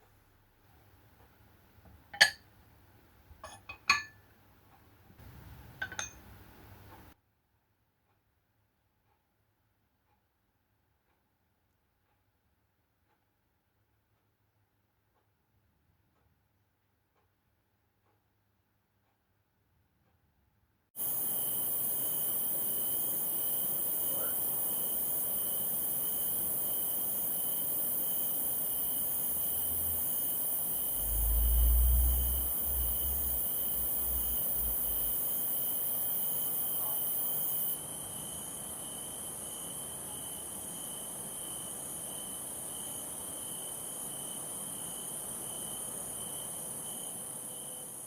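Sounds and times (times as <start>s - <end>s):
crickets chirping: 21.0s - 48.0s
high hiss: 21.0s - 48.0s.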